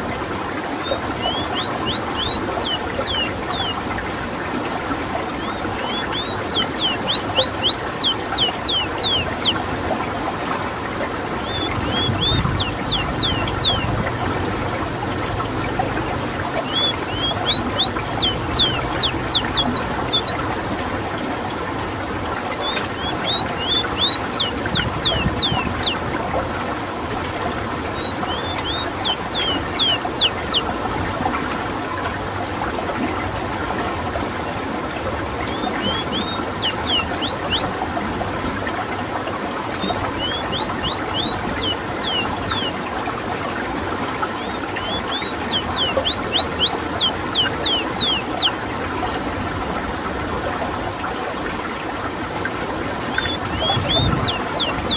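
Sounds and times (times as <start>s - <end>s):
bird singing whistled notes: 0.8s - 3.8s, 5.4s - 9.6s, 11.4s - 13.9s, 16.6s - 20.5s, 22.6s - 26.0s, 28.0s - 30.7s, 35.5s - 37.7s, 39.8s - 42.7s, 44.4s - 48.6s, 53.1s - 54.9s.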